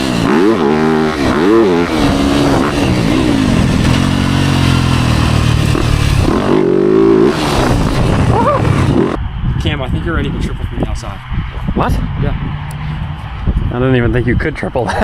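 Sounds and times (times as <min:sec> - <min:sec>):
dirt bike engine revving: 0:00.0 - 0:09.2.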